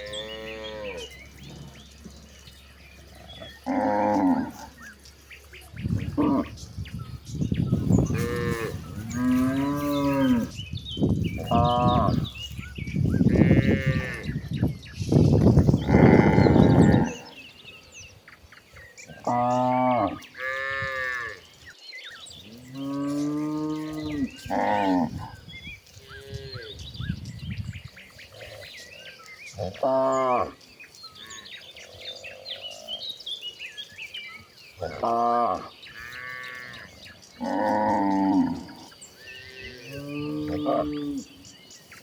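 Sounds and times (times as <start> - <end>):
cattle mooing: 3.1 - 4.8, 8.0 - 10.6, 15.8 - 17.3, 34.8 - 41.3.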